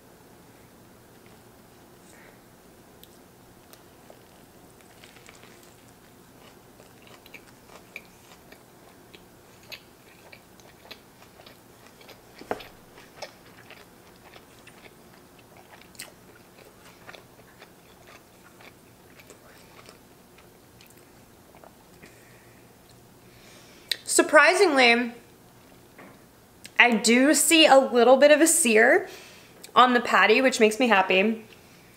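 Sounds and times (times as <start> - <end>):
person chewing food: 3.0 - 22.2.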